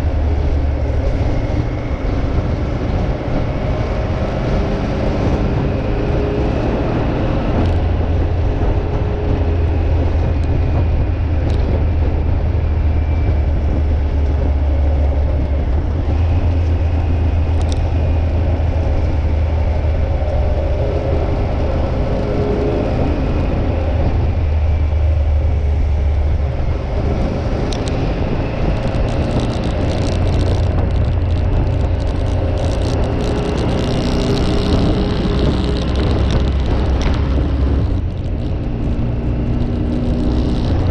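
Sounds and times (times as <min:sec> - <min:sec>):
motorcycle engine drone: 0:00.0 - 0:40.9
road and wind noise: 0:00.0 - 0:40.9
short crackles and ticks: 0:27.5 - 0:40.9.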